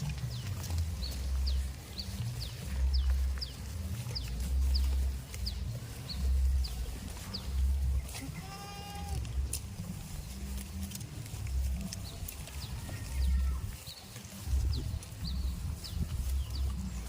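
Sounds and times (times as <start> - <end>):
goat bleating: 7.9 - 9.8, 12.4 - 13.9.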